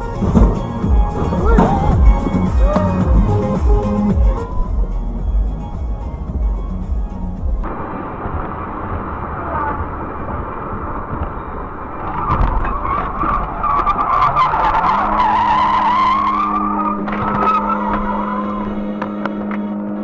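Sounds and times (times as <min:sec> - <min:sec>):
steady low hum: 0:00.0 - 0:12.6
road noise: 0:00.0 - 0:20.0
car tyres squealing: 0:08.6 - 0:20.0.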